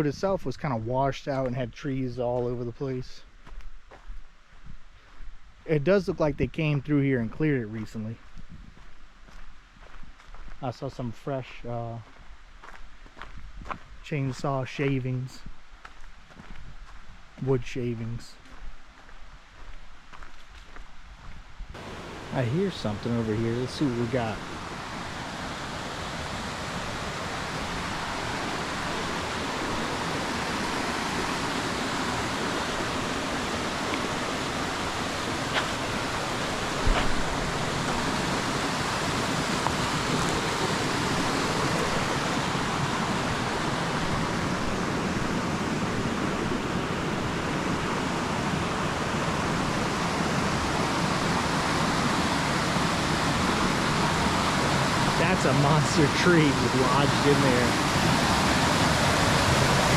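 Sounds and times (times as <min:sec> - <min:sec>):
flowing river water: 0:21.8 - 0:59.9.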